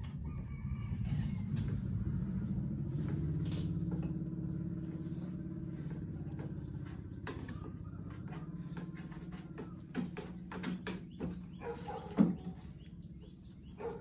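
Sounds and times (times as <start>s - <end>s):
motor humming: 1.4s - 14.0s.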